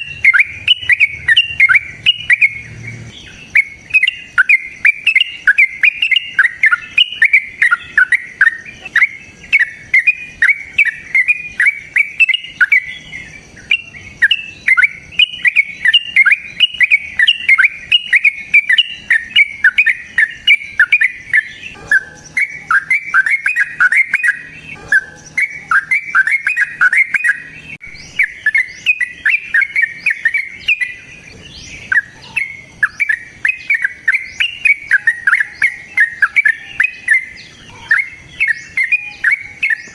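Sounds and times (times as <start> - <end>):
lovebird chattering: 0.0 - 39.9.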